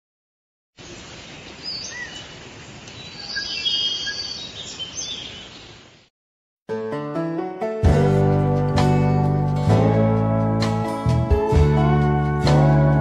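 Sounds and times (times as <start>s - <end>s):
outdoor ambient hiss: 0.8s - 6.1s
birds chirping and whistling: 1.4s - 2.3s, 2.9s - 5.8s.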